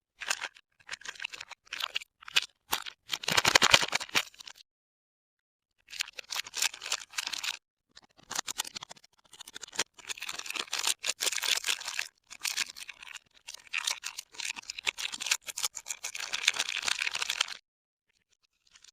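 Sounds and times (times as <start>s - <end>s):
packaging crinkling and tearing: 0.3s - 4.5s.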